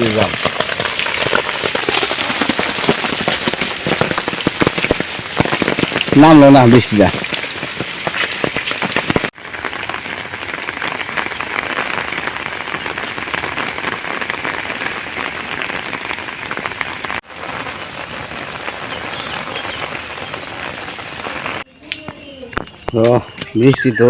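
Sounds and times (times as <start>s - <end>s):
light rain falling: 0.0s - 23.5s.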